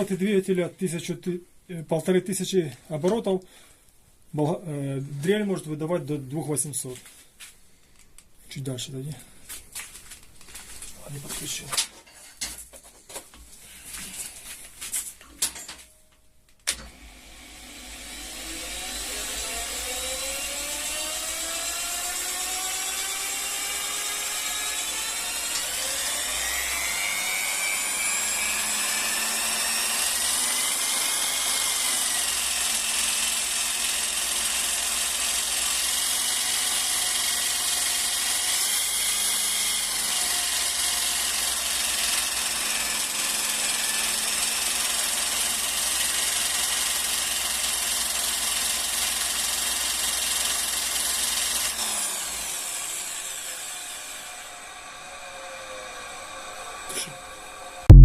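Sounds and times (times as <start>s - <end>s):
drill and motor whining: 16.7s - 58.0s.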